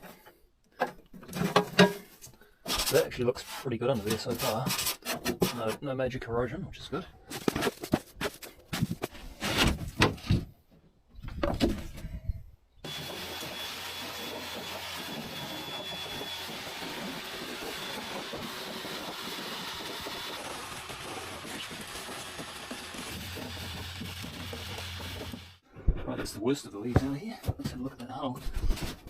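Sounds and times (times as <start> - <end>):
vacuum cleaner running: 12.8 - 25.6
rubbing and knocking: 13.0 - 25.6.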